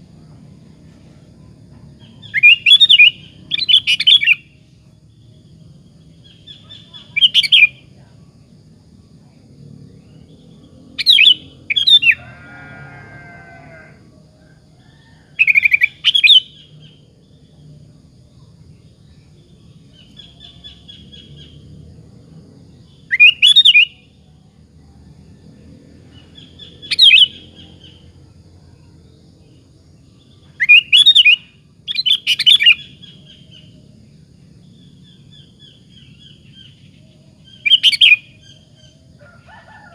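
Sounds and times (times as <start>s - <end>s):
bird whistled phrases: 23.1s - 24.0s, 30.6s - 32.9s.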